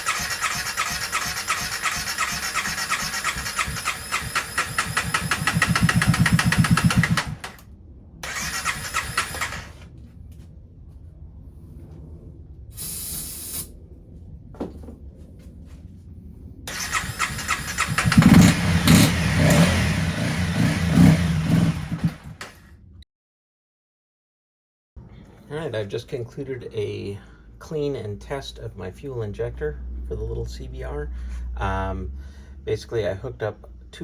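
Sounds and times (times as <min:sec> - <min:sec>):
electric starter cranking engine: 0:00.0 - 0:07.6, 0:08.2 - 0:09.8, 0:16.7 - 0:22.7
short hiss: 0:12.8 - 0:13.7.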